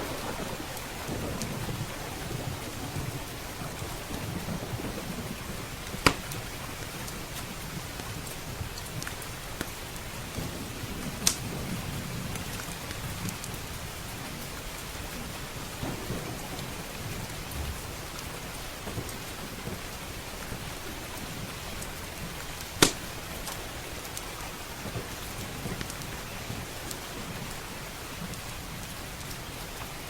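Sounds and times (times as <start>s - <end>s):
low rolling thunder: 0.0s - 7.0s, 10.2s - 23.3s
heavy rain: 0.0s - 30.0s
wood fire crackling and popping: 3.6s - 10.4s, 11.0s - 13.6s, 15.6s - 27.6s, 28.2s - 29.9s.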